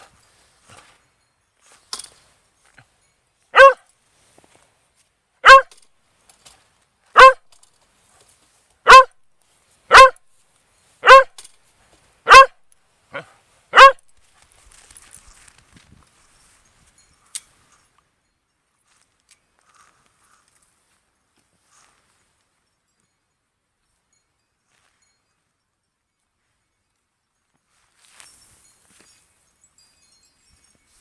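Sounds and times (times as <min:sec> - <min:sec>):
dog barking: 0:03.5 - 0:03.8, 0:05.4 - 0:05.8, 0:07.2 - 0:07.4, 0:08.8 - 0:09.1, 0:09.9 - 0:10.2, 0:11.0 - 0:11.4, 0:12.3 - 0:12.6, 0:13.2 - 0:14.0.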